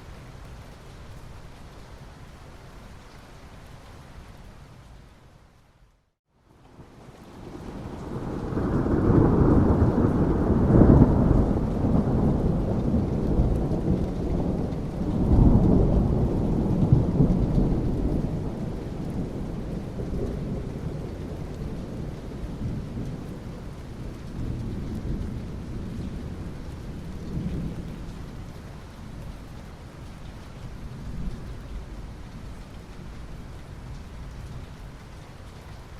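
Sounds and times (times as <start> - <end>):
steady rain: 0.0 - 35.9
thunder rumbling: 7.4 - 28.6.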